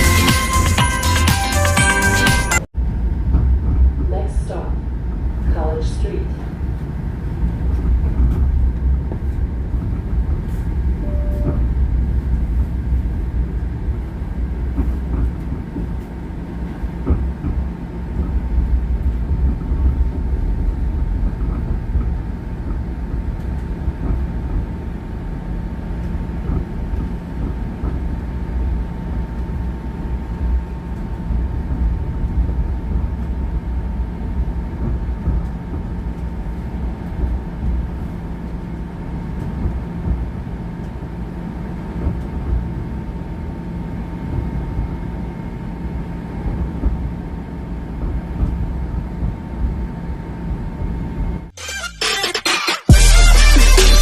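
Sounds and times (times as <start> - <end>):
moving vehicle rumble: 2.7 - 43.4
short beep: 11.0 - 11.6.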